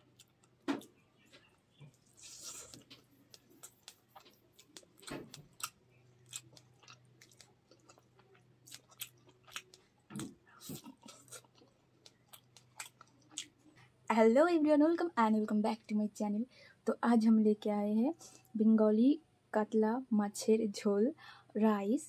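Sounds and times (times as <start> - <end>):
biting into fried fish: 0.1 - 13.6
wet mouth clicks chewing: 0.1 - 13.6.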